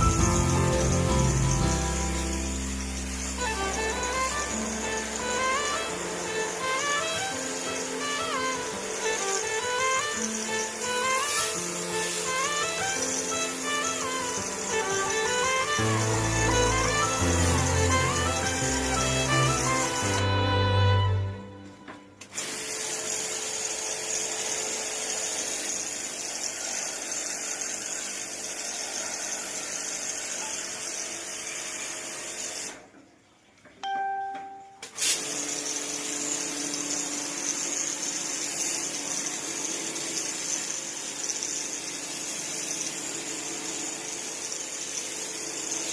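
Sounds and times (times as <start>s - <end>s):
water spray hissing: 0.0s - 21.2s.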